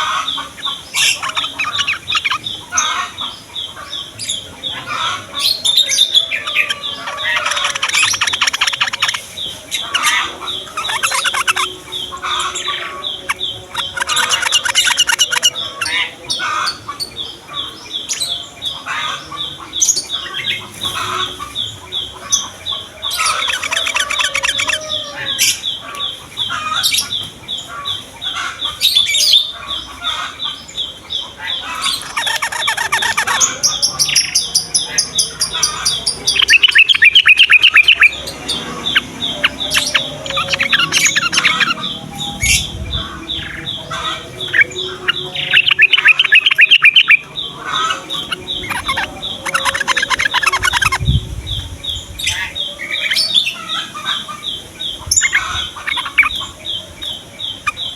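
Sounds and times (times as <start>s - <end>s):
bulbuls chattering and singing: 0.0s - 57.9s
loud rapid bird trills: 0.0s - 57.9s.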